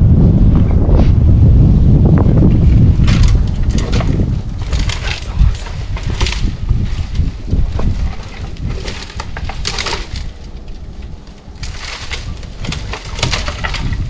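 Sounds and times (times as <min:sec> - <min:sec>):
wind rumble on microphone: 0:00.0 - 0:14.0
twigs crackling and snapping: 0:02.9 - 0:14.0.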